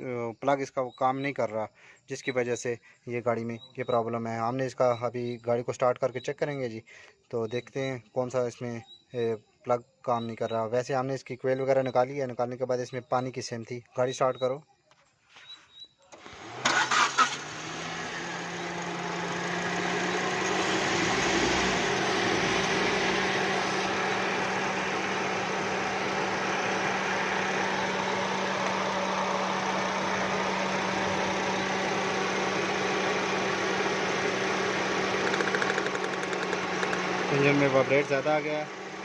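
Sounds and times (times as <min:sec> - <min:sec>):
car engine idling with misfire: 0:16.2 - 0:39.0.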